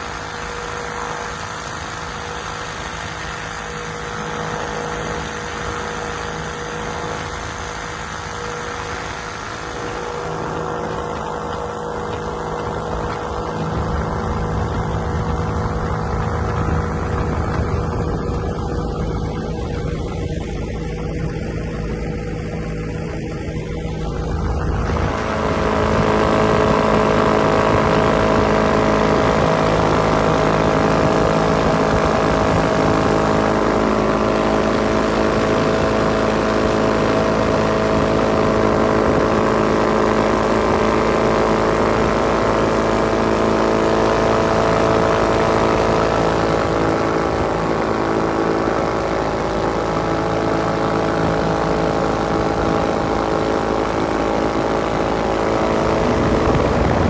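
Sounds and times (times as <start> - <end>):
ultralight aircraft engine running: 0.0 - 57.0.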